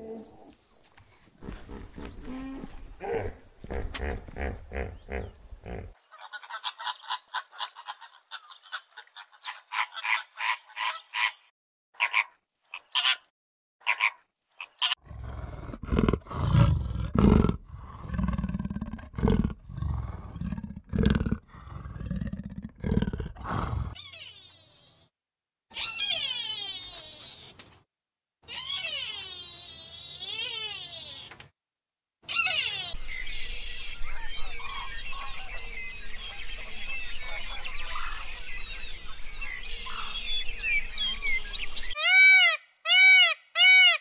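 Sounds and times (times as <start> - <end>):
deep animal grunting calls: 1.4 - 6.0, 15.0 - 24.0.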